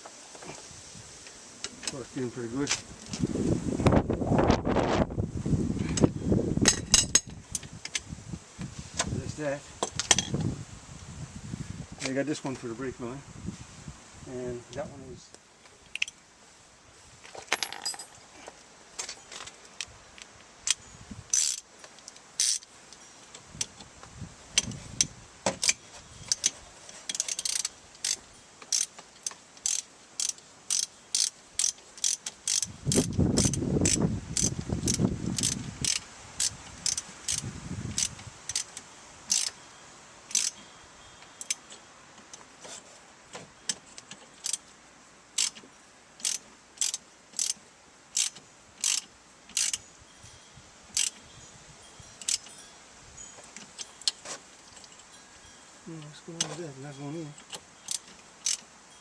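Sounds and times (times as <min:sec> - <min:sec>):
socket ratchet clicking: 0:20.7 - 0:21.6, 0:22.4 - 0:22.6, 0:27.1 - 0:37.4, 0:39.3 - 0:39.5, 0:40.3 - 0:40.6, 0:45.4 - 0:45.6, 0:46.2 - 0:47.6, 0:48.2 - 0:49.8, 0:57.4 - 0:58.6.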